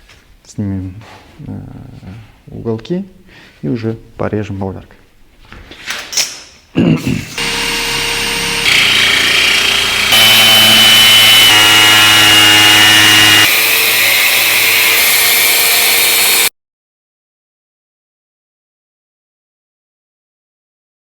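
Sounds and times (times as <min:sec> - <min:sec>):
angle grinder cutting tile: 0:07.4 - 0:16.5.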